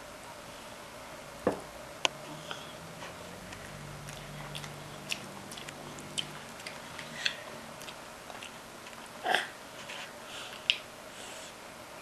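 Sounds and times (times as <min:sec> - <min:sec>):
faint low hum: 0:00.0 - 0:12.0
child chewing crunchy food: 0:02.4 - 0:11.4.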